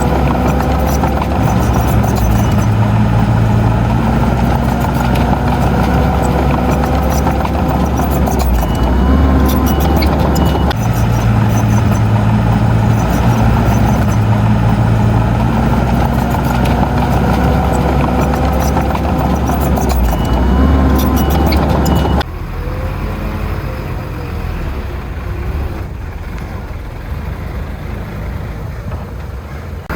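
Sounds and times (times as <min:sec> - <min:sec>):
light clanking: 0:00.0 - 0:22.2
heavy diesel engine running: 0:00.0 - 0:29.9.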